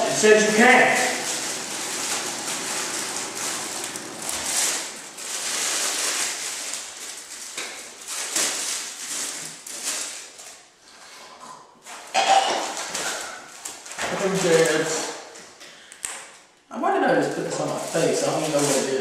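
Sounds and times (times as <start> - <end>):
plastic packaging crinkling: 0.0 - 10.8, 12.6 - 14.9, 17.2 - 19.0.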